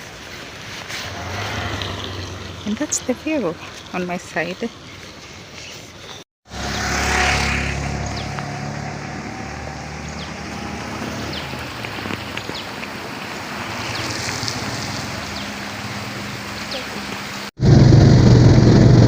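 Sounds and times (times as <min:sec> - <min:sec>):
wind: 0:00.0 - 0:19.0
vehicle engine: 0:00.7 - 0:04.6, 0:06.5 - 0:19.0
drizzling rain hiss: 0:09.9 - 0:17.5.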